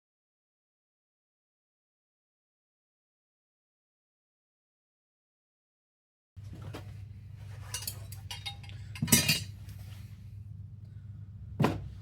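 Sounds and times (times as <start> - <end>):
low hum: 6.4 - 12.0
small metal parts clinking: 7.6 - 9.6.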